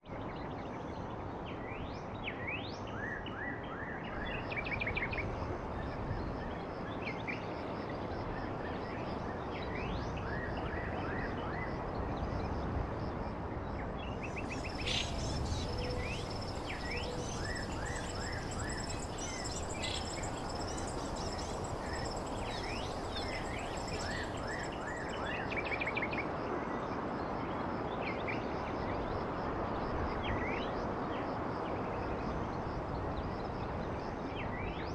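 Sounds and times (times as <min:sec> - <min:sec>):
blizzard wind: 0:11.8 - 0:27.9
small birds chirping: 0:14.2 - 0:25.8.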